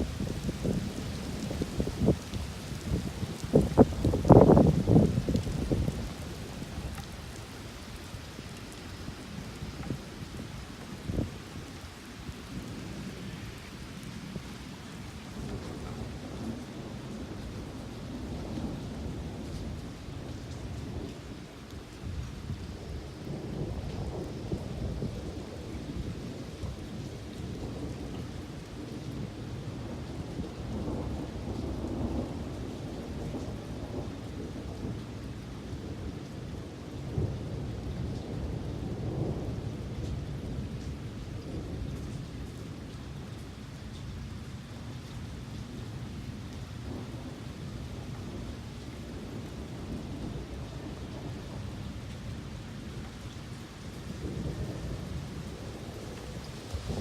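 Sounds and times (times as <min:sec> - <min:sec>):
rolling thunder: 0:00.0 - 0:07.0, 0:54.0 - 0:57.0
steady rain: 0:00.0 - 0:57.0.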